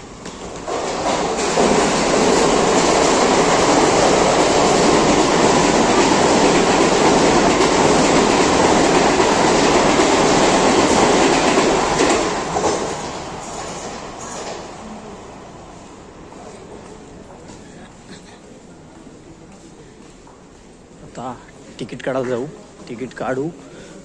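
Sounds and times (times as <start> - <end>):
electric train rumbling past: 0.0 - 18.0.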